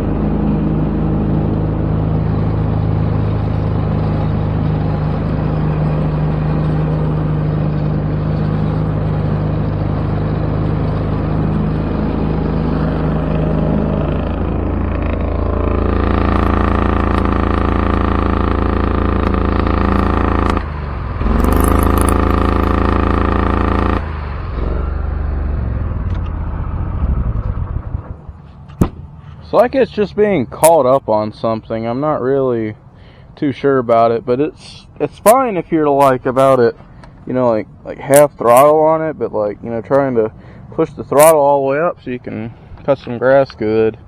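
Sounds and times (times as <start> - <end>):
mower engine revving: 0.0 - 27.4.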